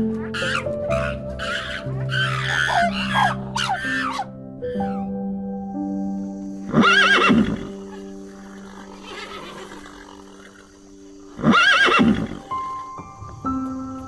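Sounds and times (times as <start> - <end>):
soft background music: 0.0 - 14.0
wavering animal call: 0.2 - 5.2, 6.7 - 12.5.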